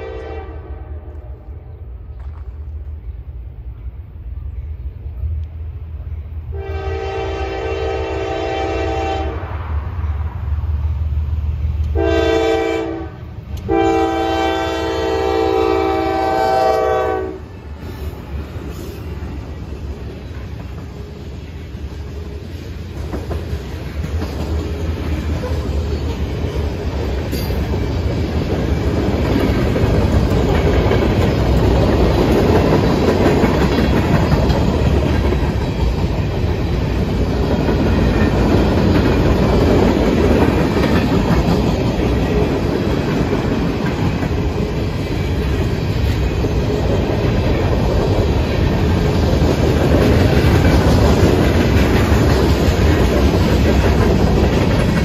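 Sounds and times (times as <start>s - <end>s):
freight train wheels on rails: 0.0s - 55.0s.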